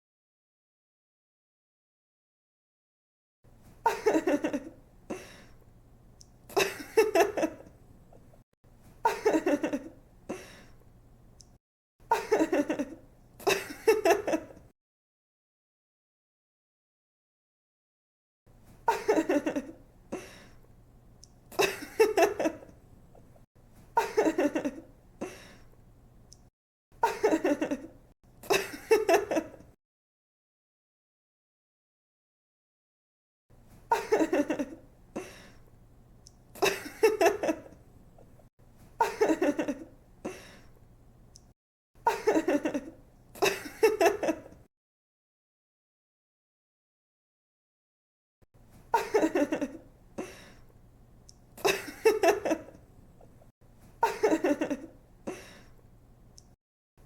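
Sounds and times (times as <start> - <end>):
woman giggling: 3.8 - 5.4, 6.5 - 7.7, 9.0 - 10.6, 12.1 - 14.6, 18.9 - 20.3, 21.5 - 22.7, 24.0 - 25.4, 27.0 - 29.7, 33.9 - 35.4, 36.6 - 37.8, 39.0 - 40.4, 42.1 - 44.6, 49.0 - 50.4, 51.6 - 52.8, 54.0 - 55.5
young woman laughing: 3.8 - 5.4, 6.5 - 7.7, 9.0 - 10.6, 12.1 - 14.6, 18.9 - 19.8, 21.5 - 22.7, 24.0 - 24.9, 27.0 - 29.7, 33.9 - 35.4, 36.6 - 37.8, 39.0 - 40.0, 42.1 - 44.6, 48.9 - 50.4, 51.6 - 52.8, 54.0 - 55.5.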